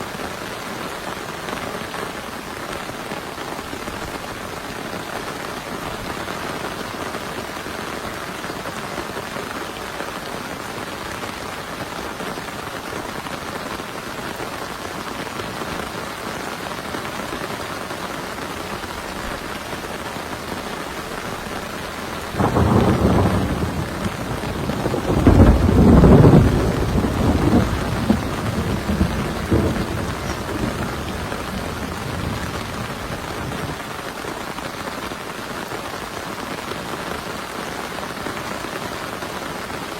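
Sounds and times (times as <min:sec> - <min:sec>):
heavy rain: 0:00.0 - 0:39.9
thunder rolling: 0:22.3 - 0:33.8.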